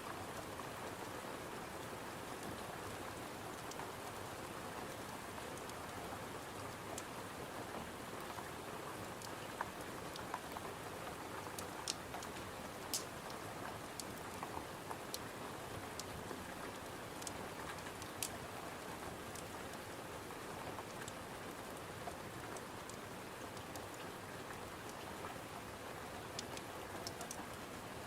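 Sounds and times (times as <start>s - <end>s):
steady rain: 0.0s - 28.0s
wood fire crackling and popping: 11.6s - 13.1s.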